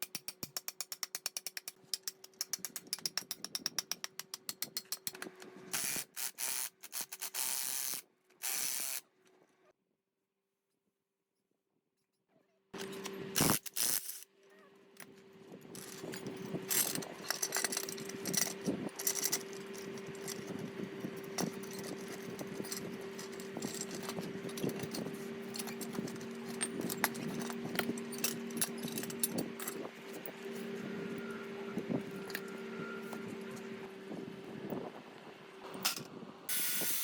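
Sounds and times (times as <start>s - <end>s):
metallic clicks and rattles: 0.0s - 7.4s, 15.7s - 30.3s.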